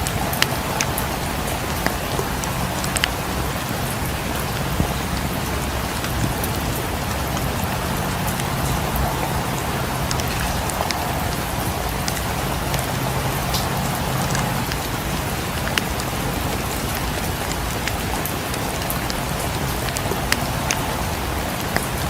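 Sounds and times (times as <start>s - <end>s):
low rumble: 0.0s - 15.3s
steady rain falling: 0.0s - 22.0s.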